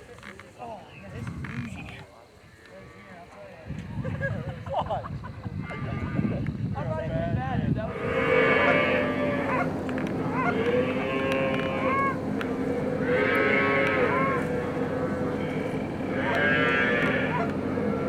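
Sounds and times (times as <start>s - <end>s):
steady low hum: 6.5s - 18.0s
geese honking and clucking: 7.9s - 18.0s.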